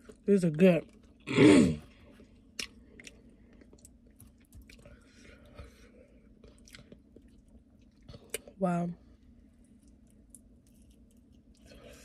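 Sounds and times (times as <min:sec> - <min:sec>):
chewing chicken wings: 0:02.1 - 0:08.5.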